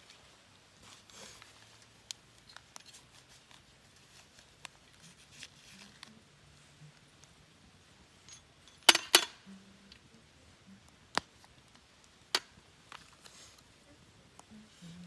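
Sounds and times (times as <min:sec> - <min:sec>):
small hard objects clinking: 0:08.2 - 0:09.4.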